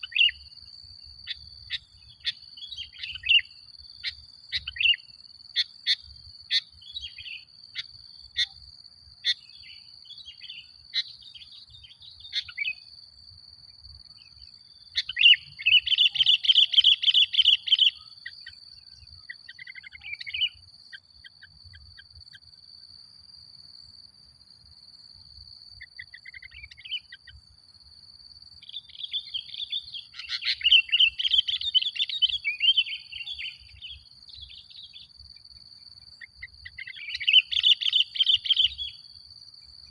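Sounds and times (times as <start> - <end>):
rapid chattering birdsong: 14.2 - 22.1.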